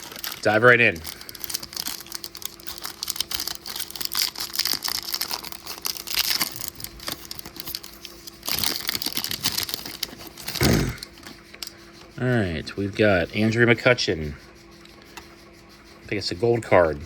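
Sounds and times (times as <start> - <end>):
plastic wrapper crinkling: 0.0 - 11.7.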